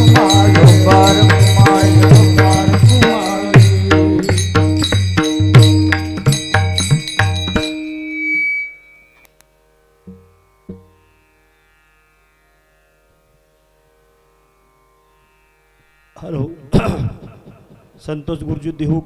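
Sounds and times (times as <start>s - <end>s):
drum beats: 0.0s - 8.2s
held note ringing: 0.0s - 9.3s
small hand cymbals: 0.0s - 9.4s.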